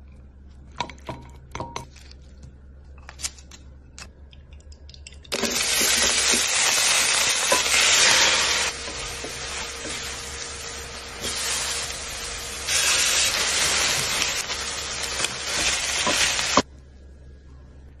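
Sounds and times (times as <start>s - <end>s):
food sizzling on a griddle pan: 5.4s - 16.6s.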